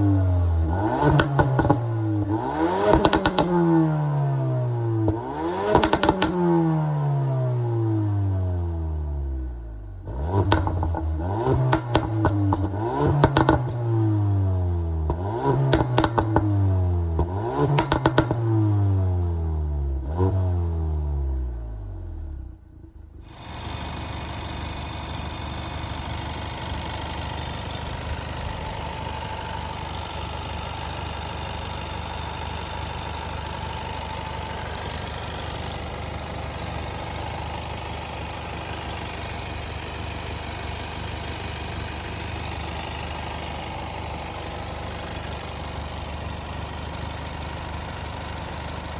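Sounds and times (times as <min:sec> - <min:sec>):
car engine revving: 0:00.0 - 0:08.8, 0:10.0 - 0:22.1
exhaust crackling pops and bangs: 0:01.0 - 0:01.8, 0:02.8 - 0:03.6, 0:05.7 - 0:06.4, 0:10.4 - 0:13.8, 0:15.1 - 0:16.5, 0:17.2 - 0:18.4.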